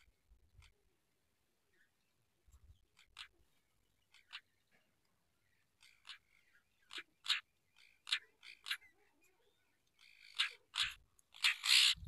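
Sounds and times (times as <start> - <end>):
harsh bird calls: 5.6 - 12.0.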